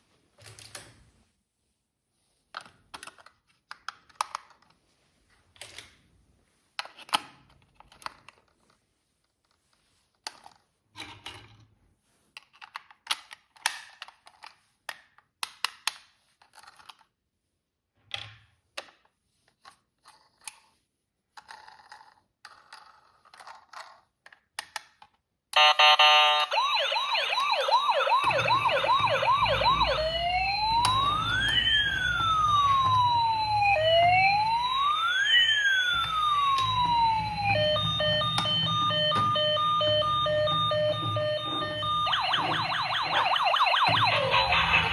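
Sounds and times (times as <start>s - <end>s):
toy clicks and rustles: 12.3s - 17.2s, 19.4s - 25.2s
electronic toy siren: 25.6s - 44.9s
electronic beeps: 36.3s - 44.9s.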